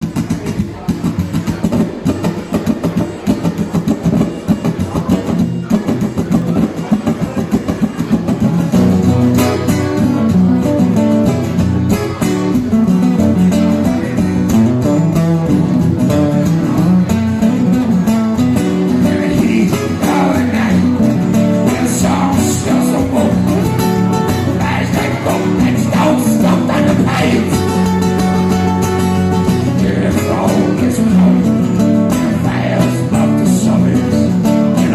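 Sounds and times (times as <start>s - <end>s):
guitar playing: 0.0s - 34.9s
person singing: 19.0s - 23.8s, 24.4s - 27.9s, 29.6s - 34.9s.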